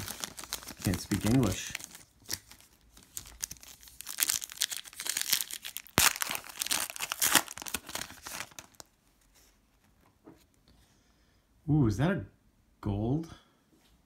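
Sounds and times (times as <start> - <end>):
wrapper being torn and crinkled: 0.0 - 9.0.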